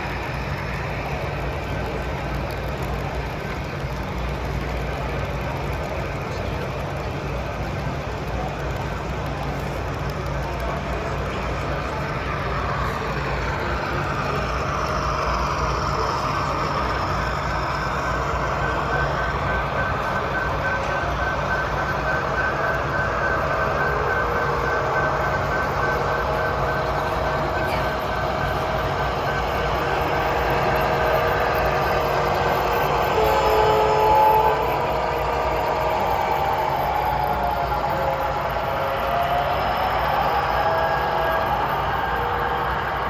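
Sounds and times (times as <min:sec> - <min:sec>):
hall noise: 0:00.0 - 0:43.0
model train running: 0:00.0 - 0:43.0
low hum: 0:08.0 - 0:43.0
thin high whine: 0:09.0 - 0:43.0
faint tones: 0:10.1 - 0:43.0.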